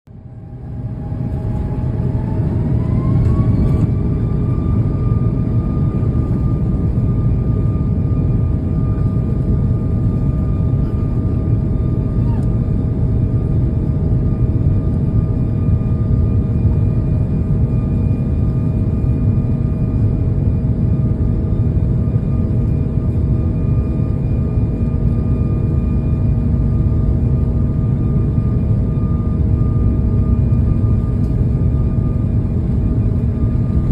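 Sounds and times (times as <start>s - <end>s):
jet engines spooling up: 0.3s - 20.0s.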